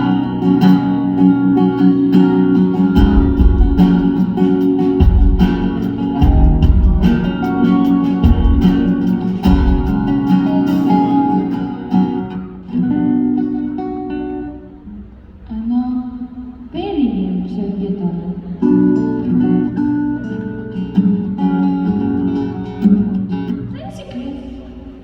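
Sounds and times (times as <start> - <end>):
guitar playing chords: 0.0 - 25.0
deep low notes: 5.0 - 10.2.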